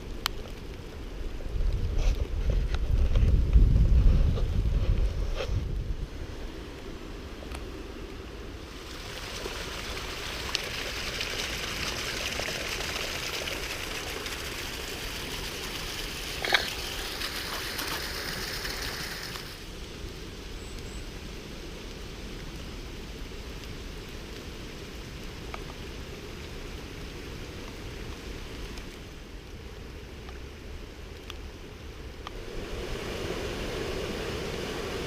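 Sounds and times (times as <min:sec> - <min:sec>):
rushing floodwater: 0:08.1 - 0:19.8.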